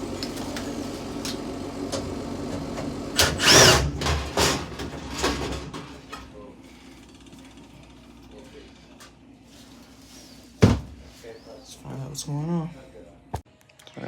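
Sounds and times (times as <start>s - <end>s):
furnace motor humming: 0.0s - 10.6s
loud clanks and scrapes: 3.2s - 6.2s.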